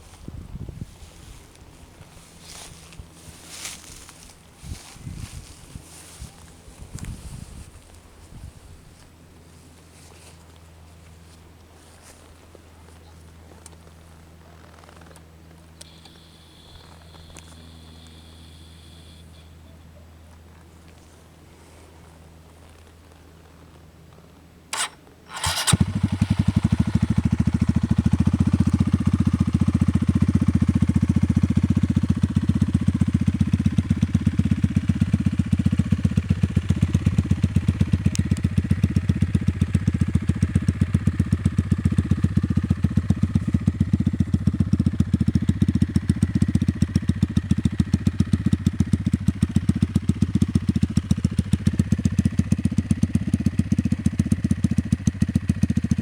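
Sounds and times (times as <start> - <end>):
motorcycle engine idling: 0.0 - 8.6, 9.4 - 22.6, 24.7 - 56.0
motorcycle engine cranking: 24.7 - 43.9.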